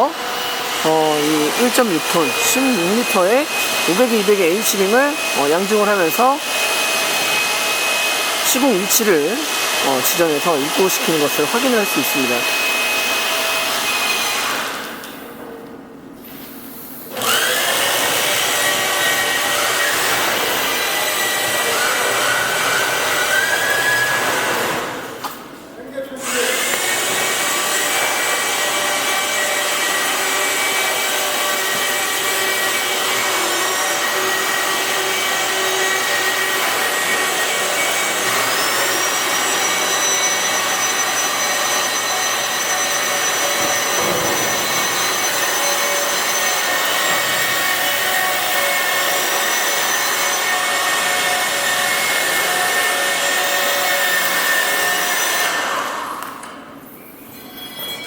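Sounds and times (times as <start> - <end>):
chain hoist motor whine: 26.2 - 58.0.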